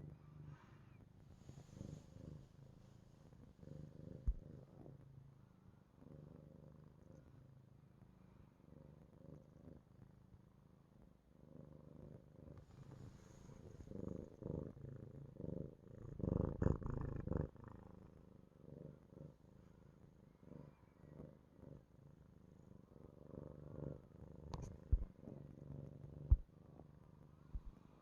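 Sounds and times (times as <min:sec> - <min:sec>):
cat purring: 0:00.0 - 0:28.0.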